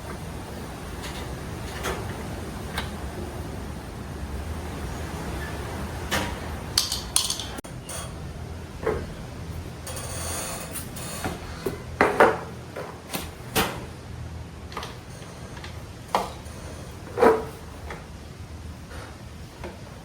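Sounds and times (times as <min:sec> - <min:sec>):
steady low hum: 0:00.0 - 0:20.0
metal tools clinking: 0:06.8 - 0:08.3.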